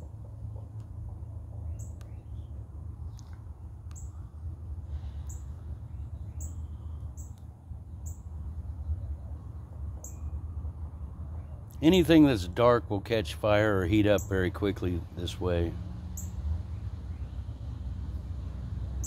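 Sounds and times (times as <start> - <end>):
steady low rumble: 0.0 - 15.8
small bird chirping: 1.6 - 3.2, 3.9 - 4.2, 5.2 - 7.4, 8.0 - 9.2, 10.0 - 10.4, 16.1 - 17.4.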